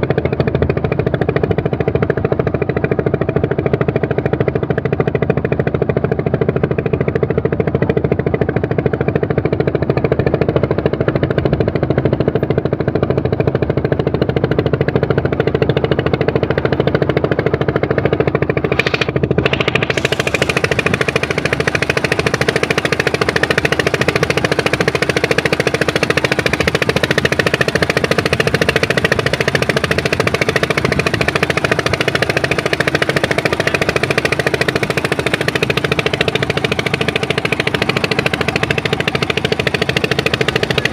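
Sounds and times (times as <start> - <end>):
boat engine droning: 0.0 - 40.9.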